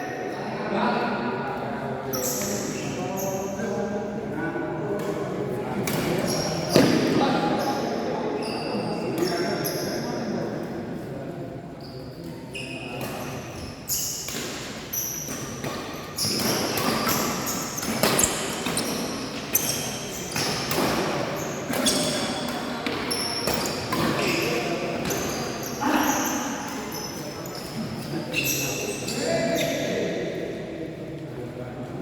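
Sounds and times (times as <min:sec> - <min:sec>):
shoe squeaks on court floor: 0:02.1 - 0:03.5, 0:05.9 - 0:10.3, 0:11.8 - 0:30.0.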